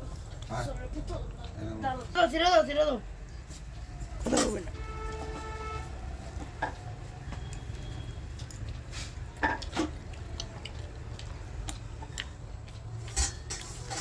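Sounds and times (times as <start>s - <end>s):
plates and utensils clinking: 13.1s - 14.0s.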